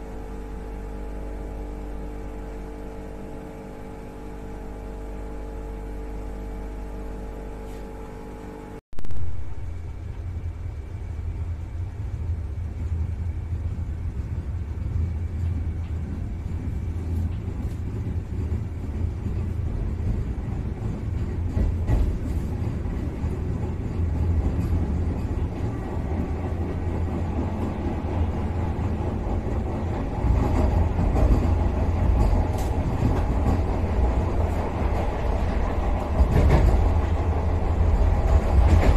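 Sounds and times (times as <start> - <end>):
train rumbling along track: 0.0 - 7.8, 9.0 - 38.9
electrical hum with tones: 0.0 - 21.6.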